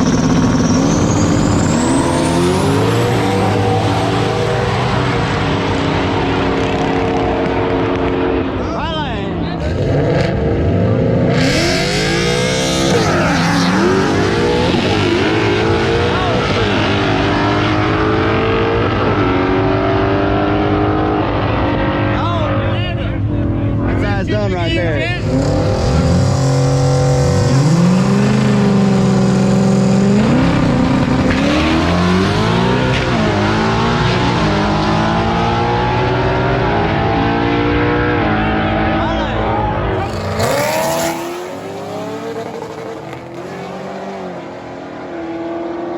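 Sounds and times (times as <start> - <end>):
car engine accelerating hard: 0.0 - 45.9.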